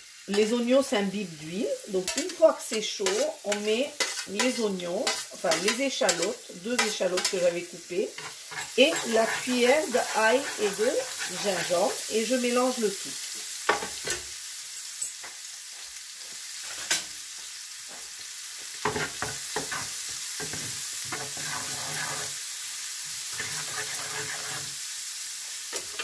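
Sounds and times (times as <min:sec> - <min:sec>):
food sizzling in oil: 0:00.0 - 0:26.0
spatula scraping pan: 0:02.0 - 0:12.6, 0:18.8 - 0:22.4, 0:23.3 - 0:24.8.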